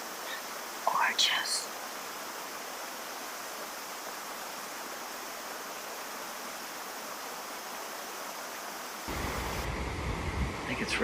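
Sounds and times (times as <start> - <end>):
water rushing down creek: 9.0 - 11.0.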